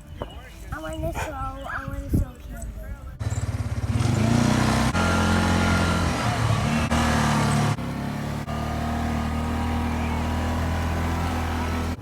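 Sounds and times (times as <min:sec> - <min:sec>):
atv engine running: 0:03.2 - 0:12.0.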